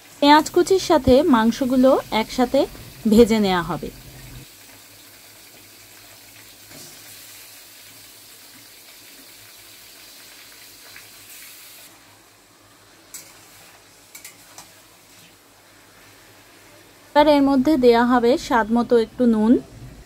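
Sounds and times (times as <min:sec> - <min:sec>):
chicken sizzling in hot oil: 0:00.0 - 0:17.6.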